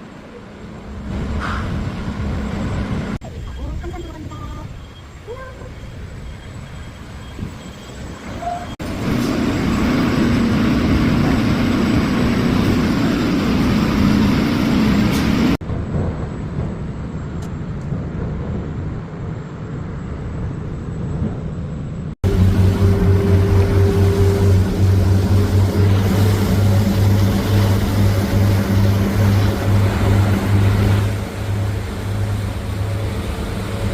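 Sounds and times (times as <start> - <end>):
vehicle engine rumble: 0.0 - 33.9
low drone: 18.1 - 33.9.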